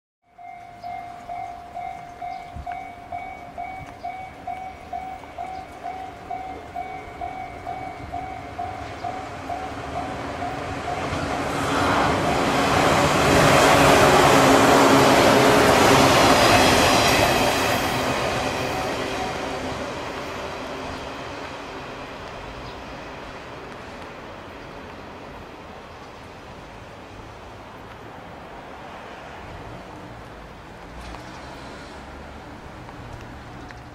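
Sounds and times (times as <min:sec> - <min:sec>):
level-crossing warning bell: 0:00.2 - 0:21.4
electric train passing: 0:00.3 - 0:30.8.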